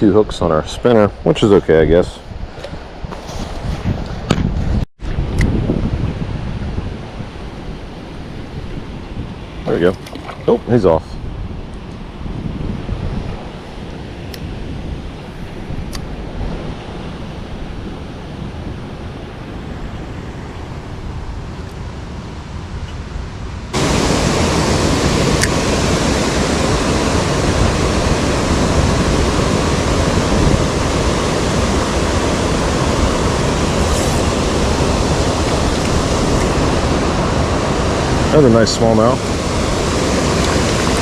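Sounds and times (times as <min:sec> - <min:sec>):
wind on microphone: 0:00.0 - 0:41.0
creek water rushing: 0:23.6 - 0:41.0.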